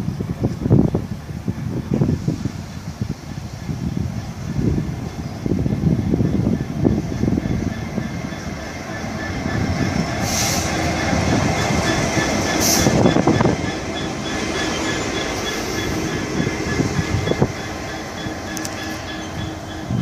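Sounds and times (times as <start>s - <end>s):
train rumbling along rails: 0.0s - 20.0s
short hissing bursts: 10.2s - 10.8s.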